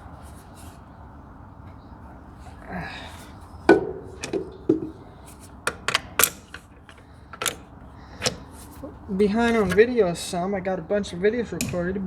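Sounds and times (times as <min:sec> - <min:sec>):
hand tools knocking on metal: 0:03.7 - 0:05.1, 0:11.5 - 0:12.0.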